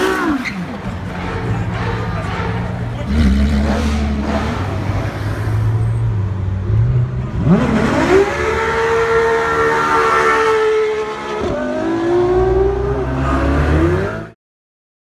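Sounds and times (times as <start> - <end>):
sports car engine revving: 6.6 - 14.3.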